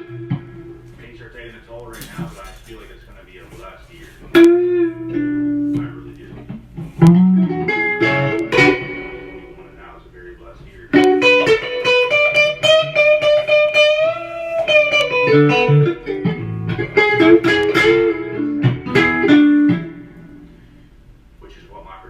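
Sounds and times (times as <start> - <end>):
guitar playing blues riff: 0.0 - 1.1, 4.3 - 10.0, 10.8 - 20.9.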